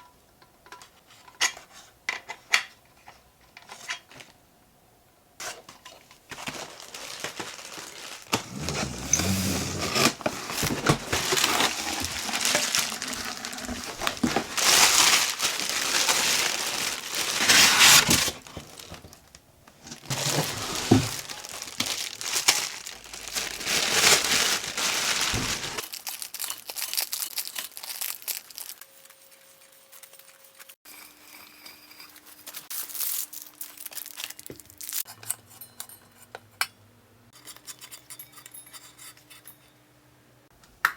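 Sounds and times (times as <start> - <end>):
packaging crinkling: 5.9 - 29.2, 32.5 - 35.1.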